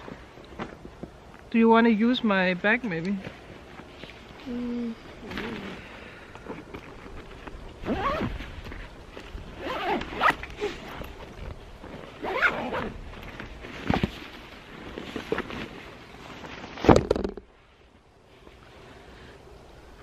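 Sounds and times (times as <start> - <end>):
bag zipper pulled: 7.8 - 8.4, 9.6 - 11.2, 11.9 - 13.0.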